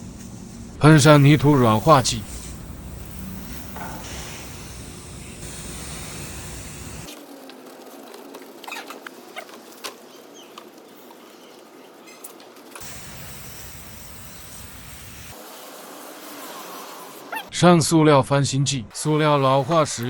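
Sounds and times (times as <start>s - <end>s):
spray hissing: 0.0s - 7.2s, 12.8s - 17.4s, 19.0s - 20.0s.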